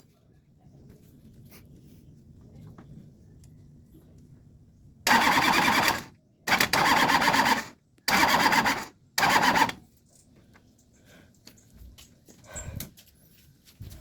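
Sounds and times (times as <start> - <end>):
starter motor cranking diesel engine: 5.1 - 9.8.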